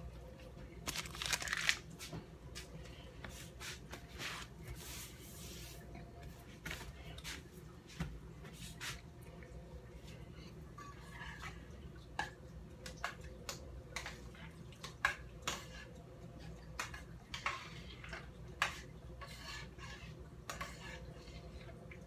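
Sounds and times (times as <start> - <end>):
rustling: 0.9 - 1.9.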